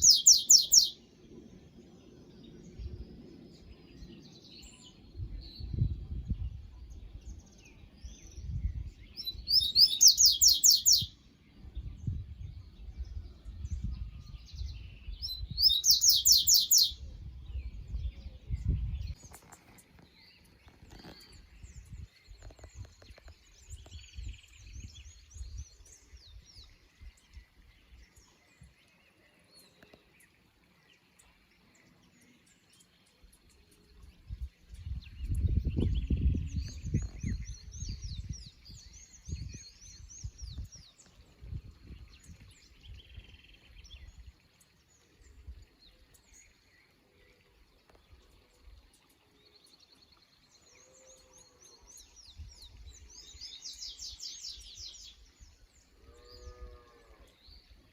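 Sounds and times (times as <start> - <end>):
songbird trills: 0.0 - 1.6, 8.4 - 11.7, 15.0 - 17.1.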